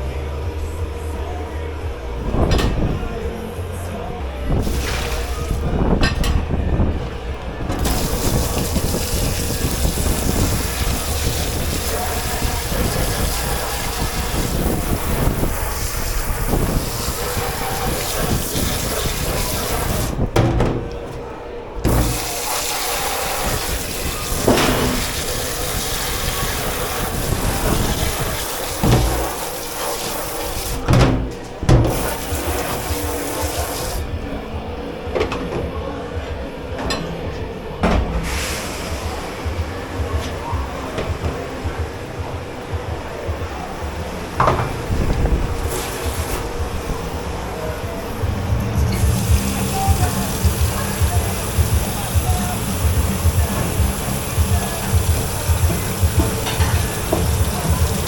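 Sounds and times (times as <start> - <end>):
water running into a sink: 4.6 - 6.3, 7.7 - 21.0, 21.9 - 34.0, 48.8 - 58.0
knocks: 20.3 - 21.2, 30.8 - 32.2.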